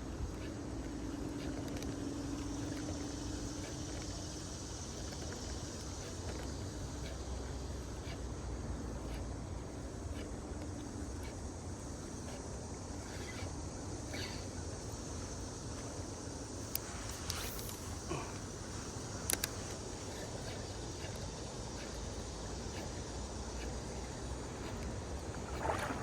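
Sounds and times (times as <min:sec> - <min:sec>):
faint ticks: 0:15.7 - 0:26.0
sharp clicks: 0:19.2 - 0:19.8.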